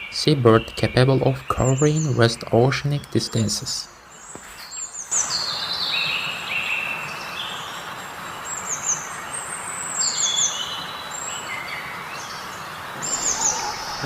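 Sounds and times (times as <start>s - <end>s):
birds chirping: 0.0s - 14.0s
steady rushing background: 12.8s - 14.0s.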